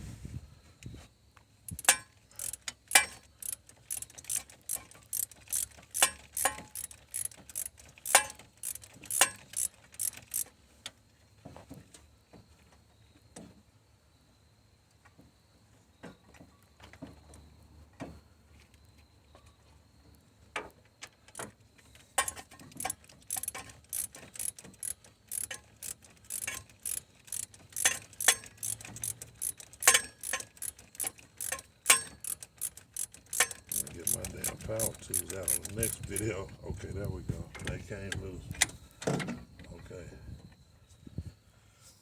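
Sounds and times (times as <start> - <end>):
ratchet wrench clicking: 1.7 - 10.5, 22.2 - 36.3.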